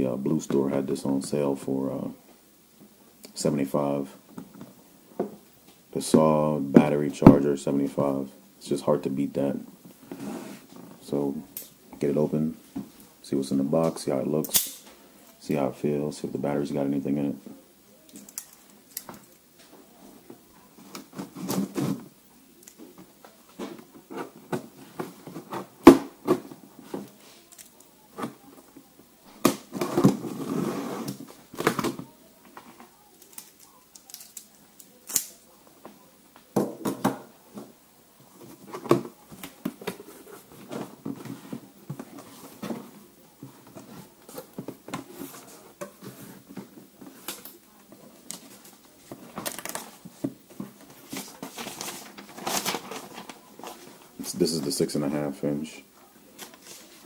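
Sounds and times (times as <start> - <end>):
packaging rustling: 38.4 - 54.4.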